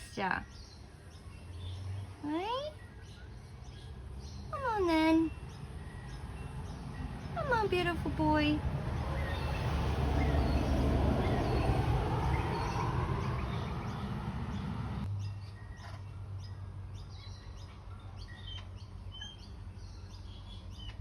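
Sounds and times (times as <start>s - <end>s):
wind buffeting microphone: 6.0s - 15.1s
high bird chirps: 8.9s - 16.1s.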